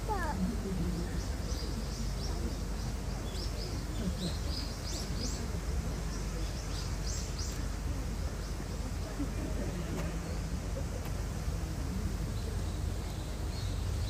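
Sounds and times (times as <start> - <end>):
small birds chirping: 0.0 - 9.1, 12.3 - 14.0.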